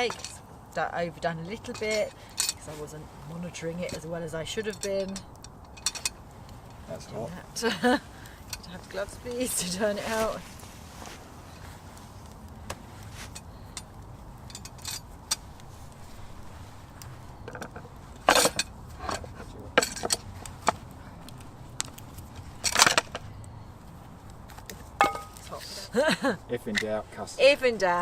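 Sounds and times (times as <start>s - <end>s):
metal pot and lid clinking: 25.0s - 25.5s.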